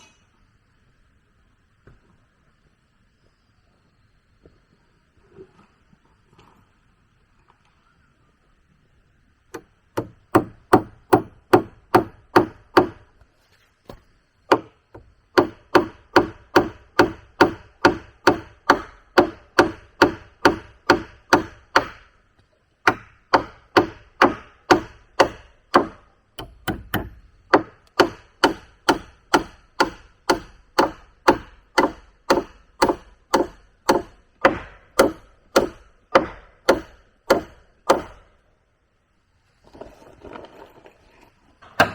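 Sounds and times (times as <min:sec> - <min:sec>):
tool striking wood: 0:09.5 - 0:13.1, 0:13.9 - 0:22.1, 0:22.8 - 0:38.3, 0:41.6 - 0:41.9.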